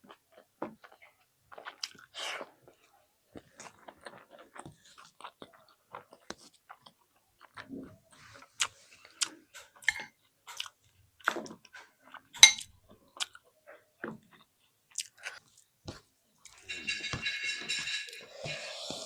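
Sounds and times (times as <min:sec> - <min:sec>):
person chewing food: 0:00.1 - 0:02.6, 0:03.4 - 0:07.7, 0:08.4 - 0:16.7, 0:18.2 - 0:19.0.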